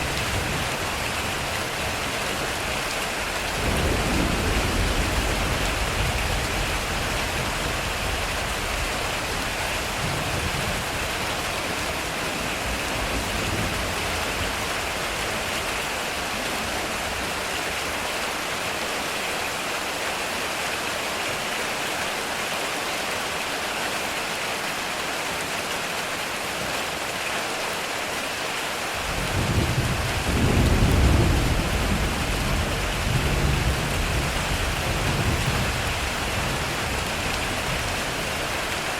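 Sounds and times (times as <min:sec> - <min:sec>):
heavy rain on a metal roof: 0:00.0 - 0:38.9
thunder rolling: 0:03.6 - 0:11.3, 0:29.0 - 0:38.5.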